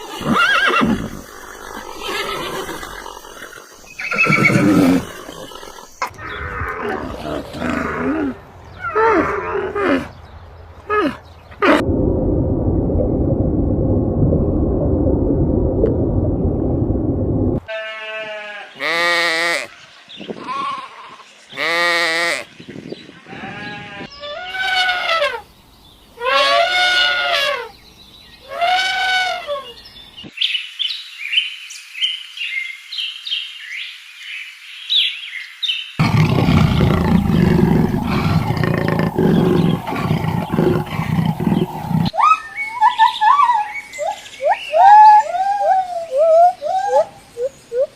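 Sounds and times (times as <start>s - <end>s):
low rough rumbling call: 11.6s - 17.6s, 36.0s - 42.1s
livestock bleating: 17.7s - 19.7s.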